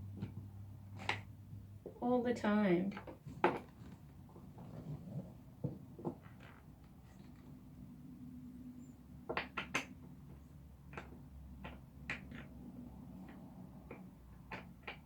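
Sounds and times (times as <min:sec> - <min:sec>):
chair parts clicking and knocking: 0:03.0 - 0:07.5, 0:09.2 - 0:15.0.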